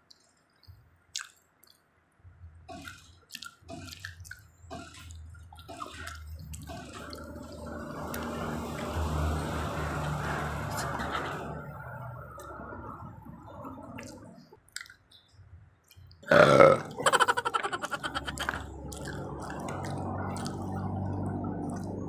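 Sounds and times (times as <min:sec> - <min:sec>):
wet chewing and lip-smacking: 0:00.1 - 0:01.8, 0:02.7 - 0:09.0, 0:13.6 - 0:16.3, 0:16.9 - 0:22.0
low rumble with hiss: 0:04.0 - 0:14.6, 0:16.3 - 0:22.0.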